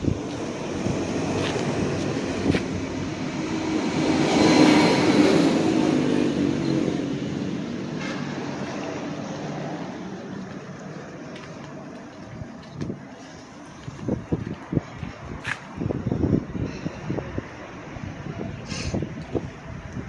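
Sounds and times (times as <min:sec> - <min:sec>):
vehicle passing by: 0:00.0 - 0:11.3.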